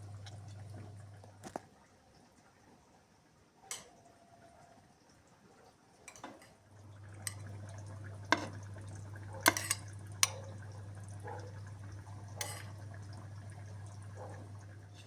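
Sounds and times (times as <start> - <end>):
utensils clinking on kitchenware: 9.5 - 9.9, 12.4 - 12.8.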